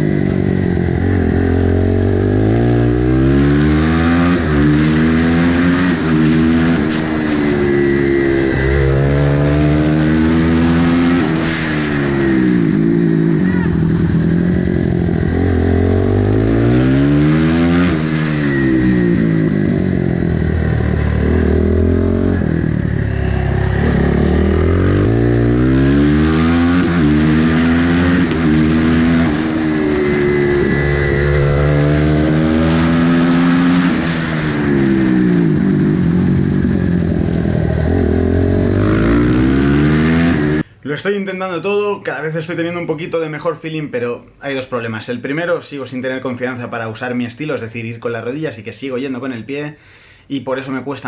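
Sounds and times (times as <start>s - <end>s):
motorcycle engine revving: 0.0s - 40.7s.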